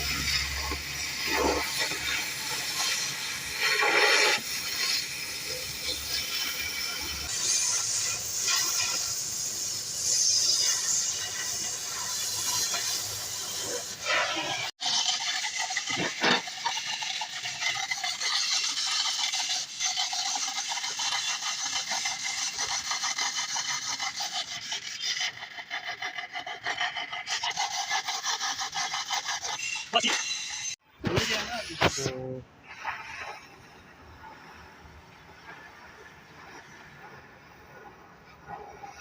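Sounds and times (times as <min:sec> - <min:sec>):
hand tool rasping on steel: 0:17.8 - 0:30.8.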